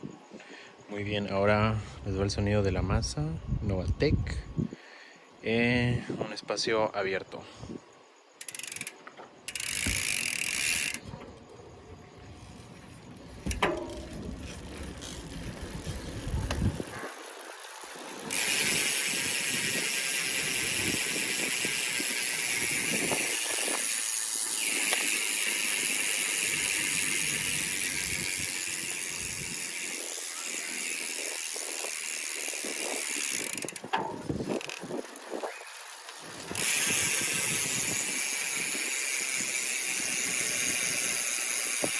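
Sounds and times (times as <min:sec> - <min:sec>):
bike hub ratcheting buzz: 0:08.3 - 0:11.2, 0:12.1 - 0:41.9.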